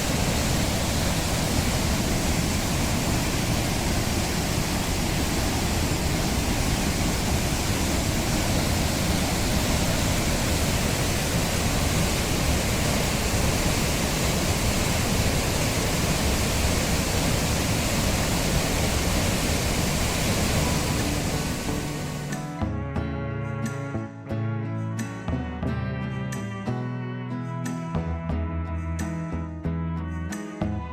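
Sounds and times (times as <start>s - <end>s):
waterfall pouring heavily: 0.0s - 22.4s.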